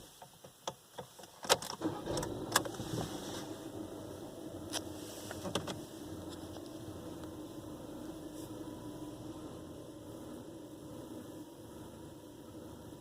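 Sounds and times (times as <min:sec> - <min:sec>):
car engine starting and idling: 0:01.3 - 0:13.0.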